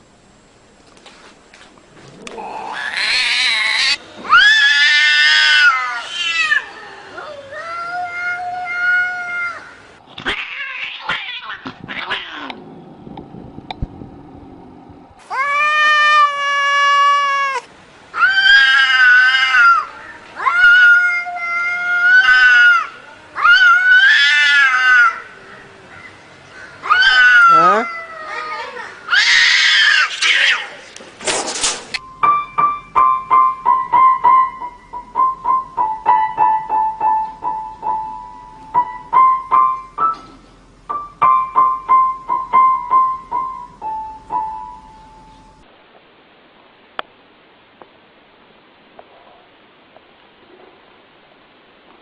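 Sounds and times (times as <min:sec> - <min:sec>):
cat meowing: 0:02.3 - 0:12.6, 0:15.3 - 0:25.2, 0:26.8 - 0:30.7.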